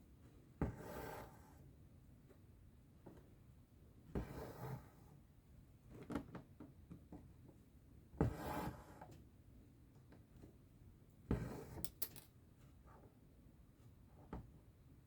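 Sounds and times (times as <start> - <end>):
thread rasping through fabric: 11.3 - 12.3.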